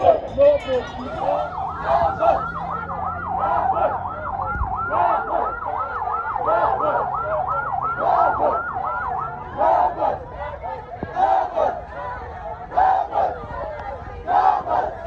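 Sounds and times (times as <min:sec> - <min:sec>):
fast yelping siren: 0:00.0 - 0:11.5.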